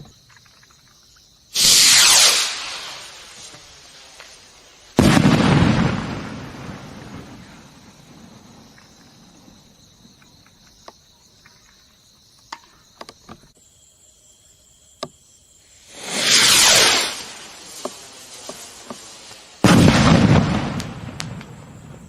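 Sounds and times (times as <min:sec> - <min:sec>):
crickets chirping: 0:00.0 - 0:22.0
rocket rising whoosh: 0:01.6 - 0:04.3, 0:15.9 - 0:21.0
firework burst rumble: 0:01.6 - 0:08.6, 0:15.8 - 0:22.0.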